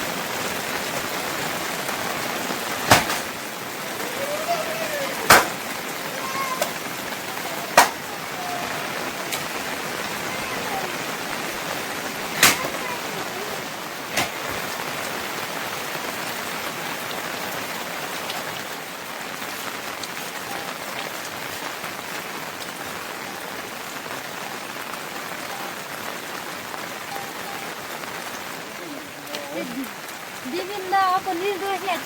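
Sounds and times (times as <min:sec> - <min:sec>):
rain pattering: 0:00.0 - 0:32.0
sharp knocks: 0:02.9 - 0:03.3, 0:05.3 - 0:05.6, 0:07.8 - 0:08.0, 0:12.4 - 0:12.8, 0:14.1 - 0:14.4.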